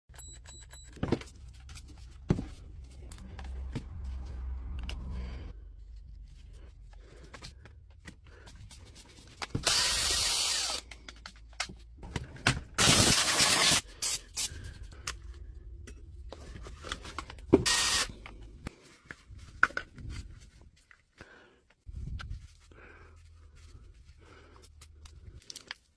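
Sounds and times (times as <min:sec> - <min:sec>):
loud hissing bursts: 0:12.8 - 0:14.3, 0:17.7 - 0:18.1.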